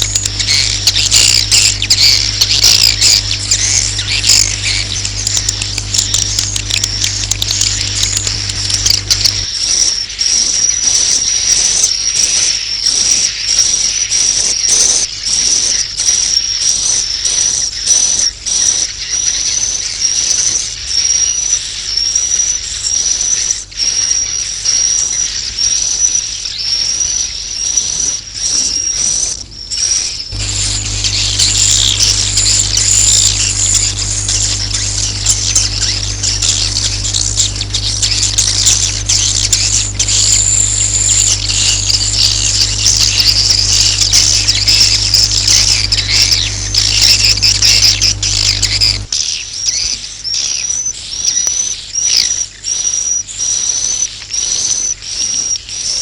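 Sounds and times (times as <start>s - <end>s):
low hum: 0.0s - 9.5s, 30.3s - 49.1s
swiftlets twittering: 0.0s - 11.7s, 29.9s - 49.2s.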